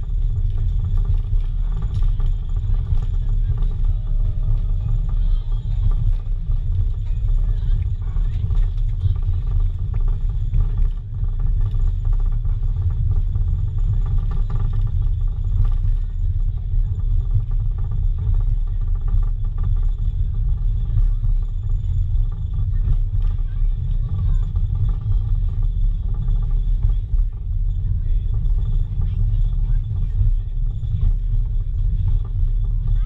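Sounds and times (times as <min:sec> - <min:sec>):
train coach low rumble: 0:00.0 - 0:33.0.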